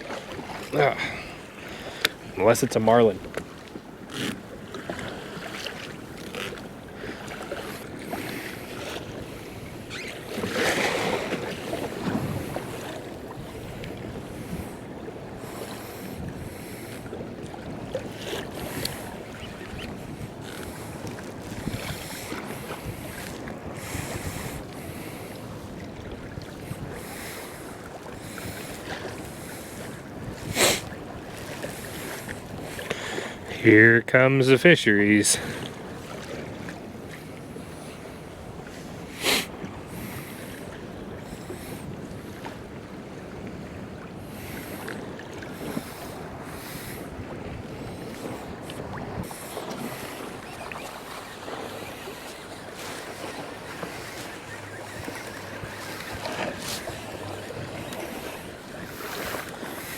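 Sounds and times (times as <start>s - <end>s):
sea water slapping around kayak: 0.0s - 33.7s, 35.1s - 59.9s
wind: 0.0s - 59.9s
whoosh of water: 44.8s - 59.9s.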